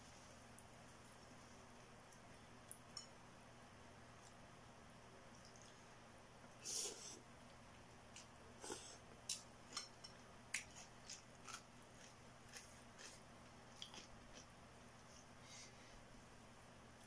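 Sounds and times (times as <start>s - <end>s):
person chewing noodles: 7.9s - 15.2s.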